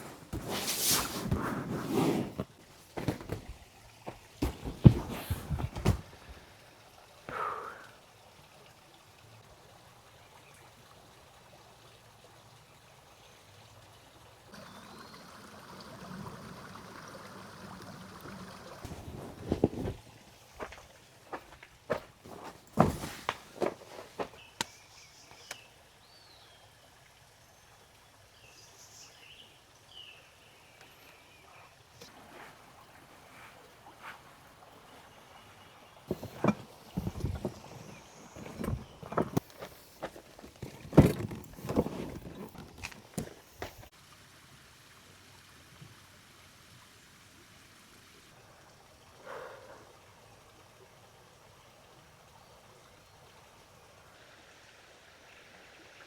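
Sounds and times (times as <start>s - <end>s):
footsteps: 0.0s - 6.4s, 18.8s - 24.4s, 36.1s - 43.9s
soft rustles: 0.0s - 6.4s, 18.8s - 24.6s, 32.1s - 35.4s, 36.1s - 43.9s
creek hiss: 0.0s - 56.0s.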